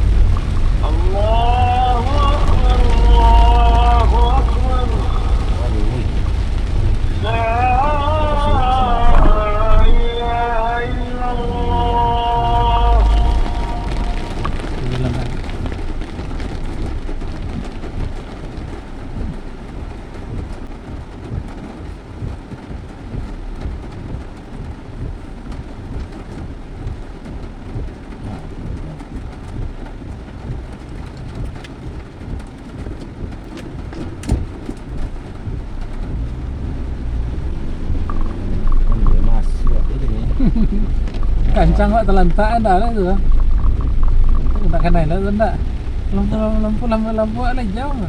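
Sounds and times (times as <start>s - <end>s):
vehicle rumble: 0.0s - 48.0s.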